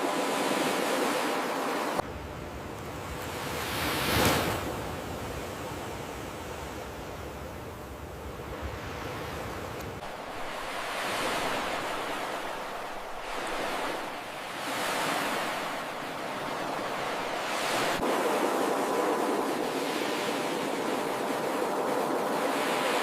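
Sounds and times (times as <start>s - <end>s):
ocean surf breaking: 2.9s - 5.5s, 8.5s - 23.0s.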